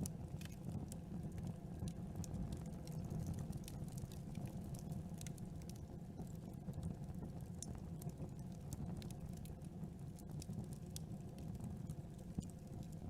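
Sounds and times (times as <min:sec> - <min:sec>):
low rumble of flames: 0:00.0 - 0:13.0
wood crackling and popping: 0:00.0 - 0:13.0.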